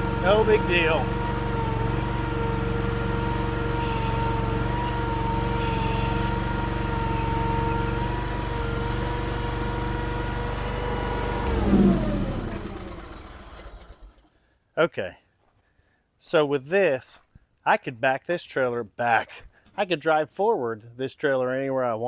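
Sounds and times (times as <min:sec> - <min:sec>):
engine winding down: 0:00.0 - 0:14.3
gas engine running at high revs: 0:00.0 - 0:14.3.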